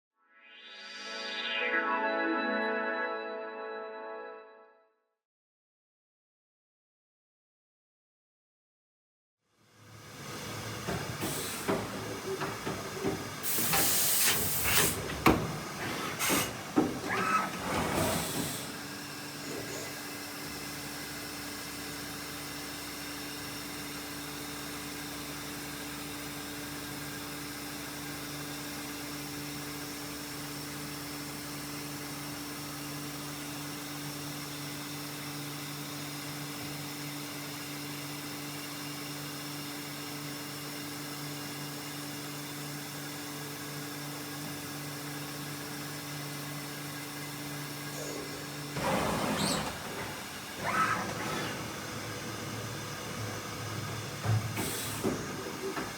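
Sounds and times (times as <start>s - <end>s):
air hiss bursts: 13.4s - 15.0s
machine clunks and knocks: 14.9s - 18.5s.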